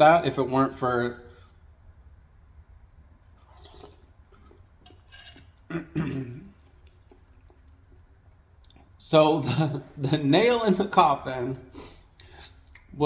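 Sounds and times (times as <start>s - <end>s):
person eating soup: 3.4s - 9.0s
spoon clinking against bowl: 4.8s - 5.6s.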